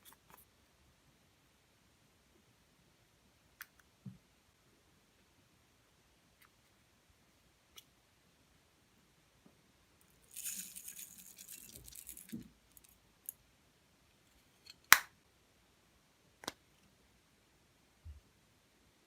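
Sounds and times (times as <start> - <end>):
crinkling rustle: 10.2 - 12.9.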